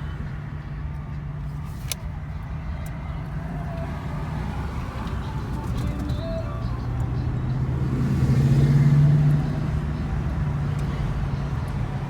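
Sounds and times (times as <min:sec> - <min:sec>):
car engine rumbling at low revs: 0:00.0 - 0:12.0.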